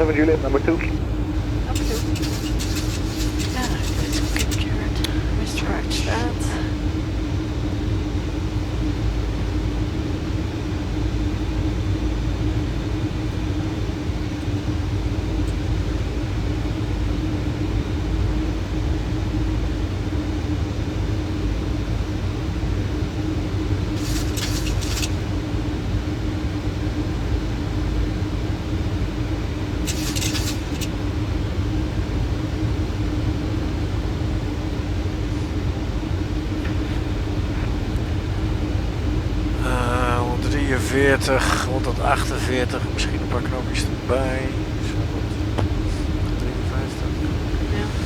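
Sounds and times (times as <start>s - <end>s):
airflow rumble and hum: 0.0s - 48.0s
brief hissing bursts: 1.7s - 4.6s, 24.0s - 25.2s, 29.9s - 30.9s.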